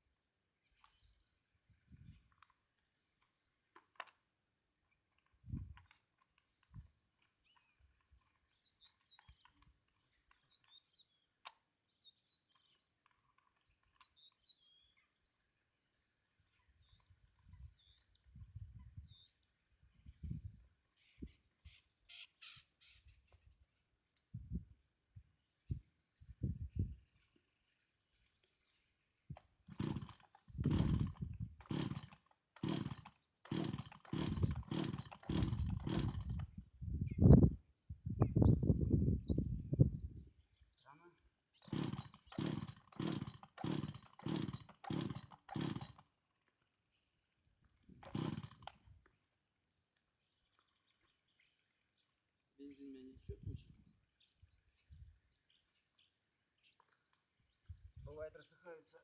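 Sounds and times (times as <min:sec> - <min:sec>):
chainsaw starter cord pulls: 0:03.2 - 0:04.2, 0:05.1 - 0:11.6, 0:29.6 - 0:36.6, 0:41.6 - 0:46.6, 0:47.9 - 0:49.0
faint bird chirps: 0:16.4 - 0:23.8
chainsaw engine turning over: 0:29.6 - 0:36.6, 0:41.6 - 0:46.3, 0:48.0 - 0:48.9.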